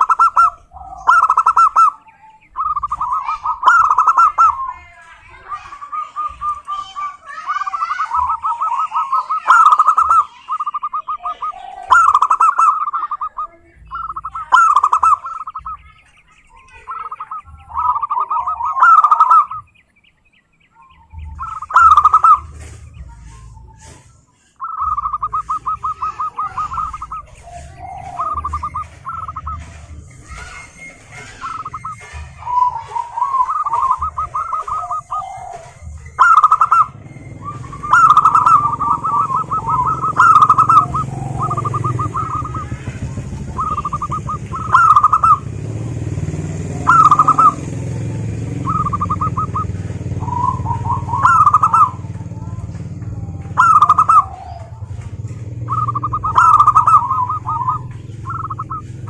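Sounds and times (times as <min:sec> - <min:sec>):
doves cooing trills: 0:00.0 - 0:59.0.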